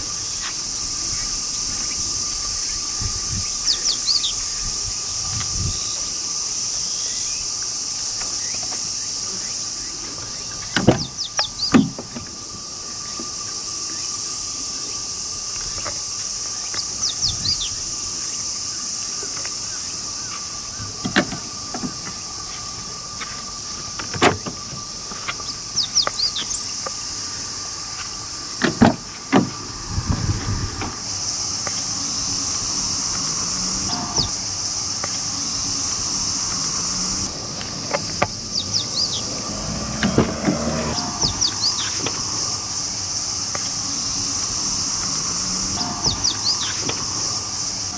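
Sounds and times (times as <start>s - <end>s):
bird chirps: 0.0s - 7.5s, 8.2s - 23.8s, 24.4s - 27.5s, 31.7s - 34.5s, 38.4s - 39.8s, 40.7s - 42.6s, 43.8s - 47.4s
insects chirring: 0.0s - 47.9s.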